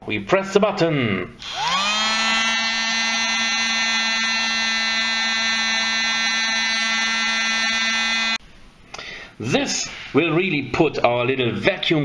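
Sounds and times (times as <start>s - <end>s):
small vacuum motor whining: 1.4s - 8.4s.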